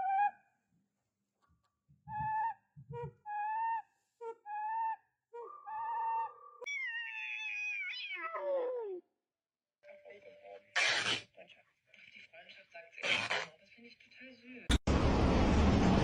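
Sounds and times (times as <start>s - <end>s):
cat meowing: 6.6s - 9.0s.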